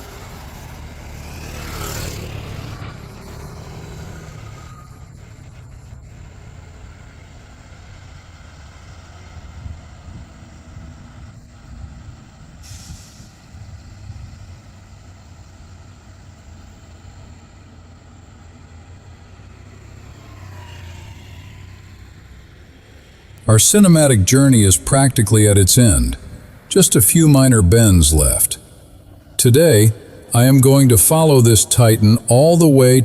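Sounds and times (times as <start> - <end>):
truck engine and road rumble: 0.0 - 33.0
air brake hiss: 12.6 - 13.7.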